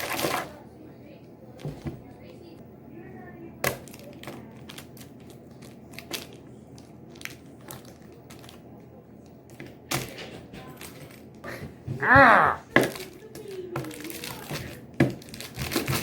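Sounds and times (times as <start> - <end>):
crunching and crackling clicks: 3.6 - 10.2, 12.8 - 16.0.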